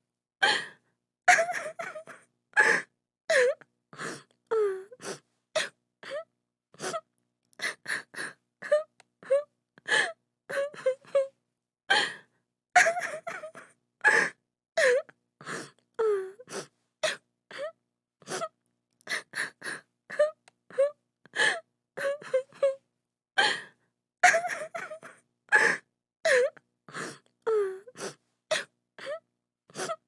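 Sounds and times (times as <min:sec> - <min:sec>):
woman sobbing: 0:01.3 - 0:03.6, 0:12.8 - 0:15.0, 0:22.0 - 0:22.8, 0:24.2 - 0:26.6.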